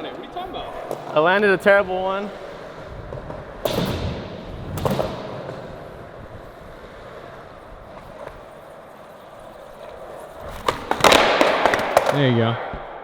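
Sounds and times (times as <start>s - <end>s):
skateboard wheels rolling: 0.0s - 13.0s
skateboard cracking on ground: 7.9s - 12.9s.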